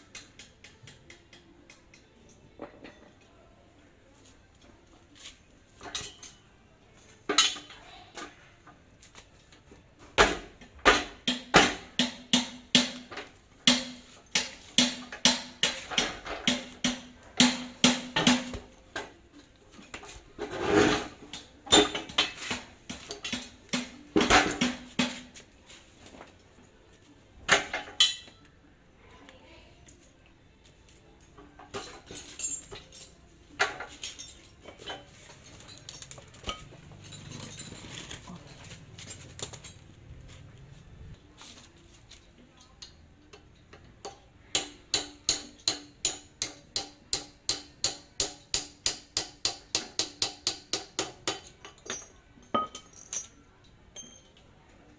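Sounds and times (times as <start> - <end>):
metal tools knocking and clinking: 0.1 - 3.3, 5.8 - 6.4, 7.3 - 7.8, 20.8 - 25.3, 27.5 - 28.4, 31.4 - 39.9, 42.6 - 54.5.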